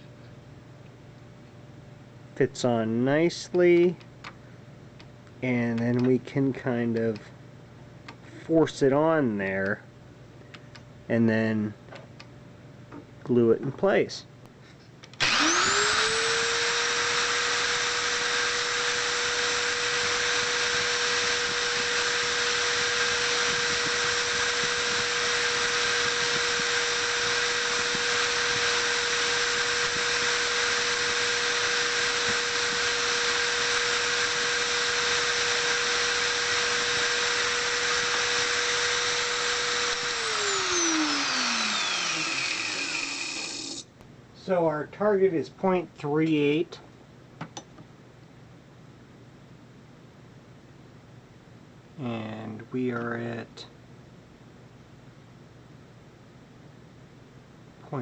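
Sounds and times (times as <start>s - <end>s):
drill press motor whining: 15.2s - 43.9s.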